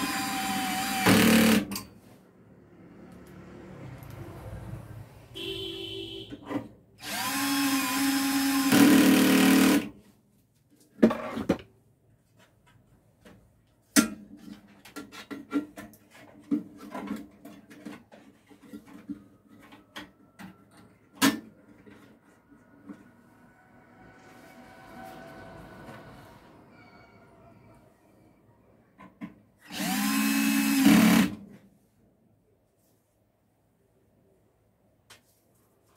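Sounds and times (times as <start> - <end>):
power drill running: 0.0 - 1.7, 7.0 - 9.9, 29.6 - 31.3.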